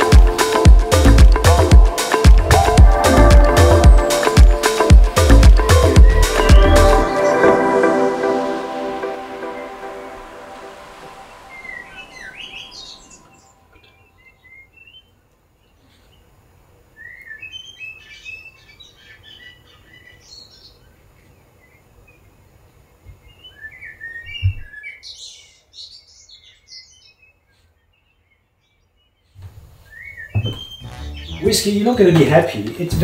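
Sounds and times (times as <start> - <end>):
small birds chirping: 11.4 - 32.8
low thump: 30.4 - 31.0.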